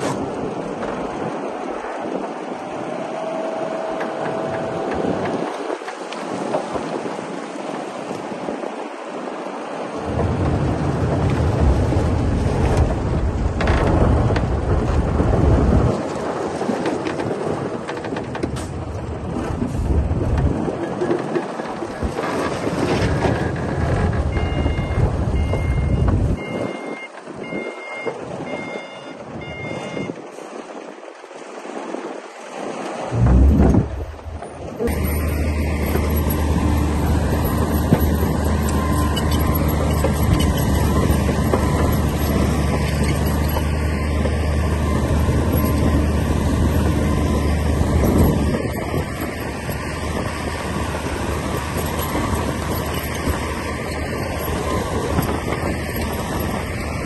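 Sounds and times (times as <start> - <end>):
bulldozer diesel engine rumbling: 0.0 - 5.8, 21.8 - 30.1, 33.1 - 57.0
wind buffeting microphone: 0.0 - 57.0
reversing alarm beeping: 24.3 - 30.2.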